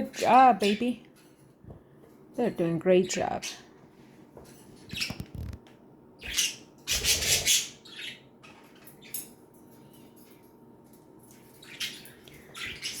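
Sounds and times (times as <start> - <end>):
budgerigars squawking and chirping: 6.2 - 9.1, 11.6 - 13.0.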